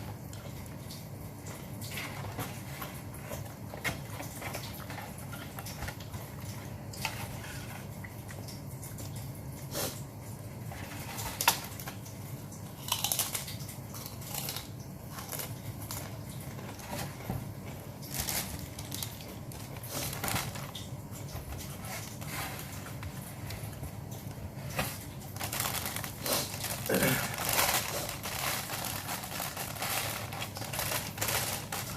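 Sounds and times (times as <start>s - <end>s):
mouth clicks and crunches: 12.8s - 16.1s, 25.0s - 31.9s
person chewing food: 12.8s - 16.2s.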